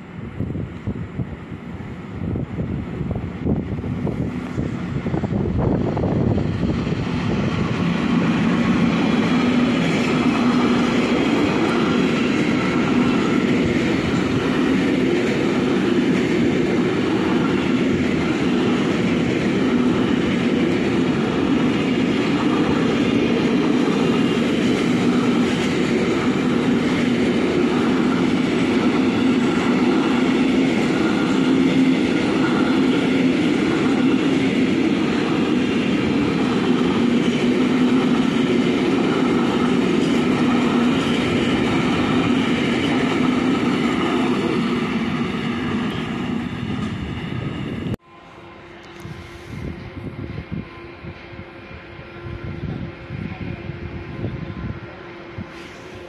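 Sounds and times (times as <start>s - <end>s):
train wheels on rails: 0.0s - 56.0s.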